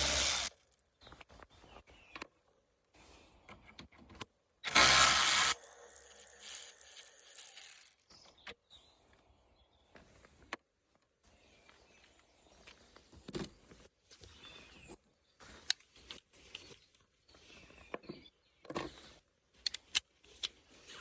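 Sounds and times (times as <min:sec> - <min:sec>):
hand tools and plastic parts clicking: 0:15.6 - 0:21.0.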